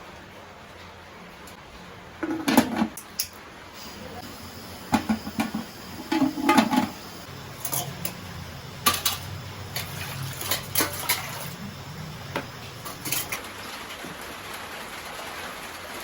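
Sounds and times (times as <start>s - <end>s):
pots and dishes clinking: 2.2s - 3.4s, 4.8s - 13.4s
low hum: 3.8s - 13.4s.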